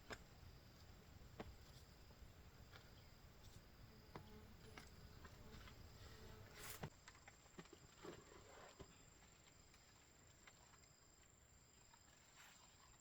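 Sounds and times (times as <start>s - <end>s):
faint high insect buzz: 0.0s - 6.9s.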